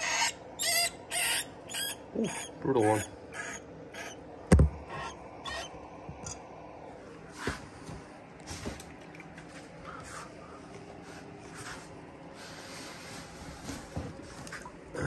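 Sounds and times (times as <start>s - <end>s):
faint scrapes and rustles: 9.6s - 14.7s.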